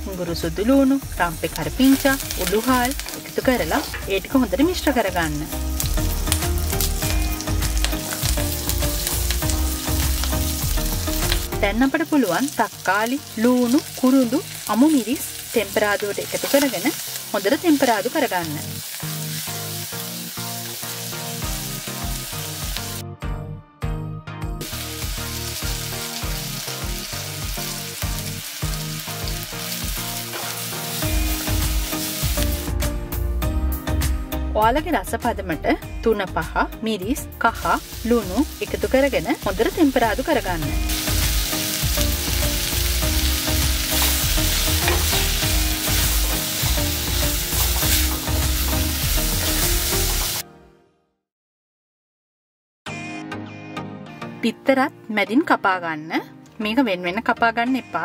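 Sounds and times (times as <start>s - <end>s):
background music with steady beat: 0.0s - 12.0s, 19.5s - 50.6s, 52.9s - 58.0s
vegetables sizzling in oil: 0.0s - 23.0s, 24.6s - 33.0s, 37.4s - 50.4s.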